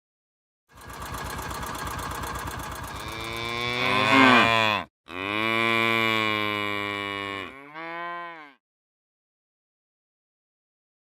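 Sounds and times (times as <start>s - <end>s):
cattle mooing: 2.9s - 8.6s.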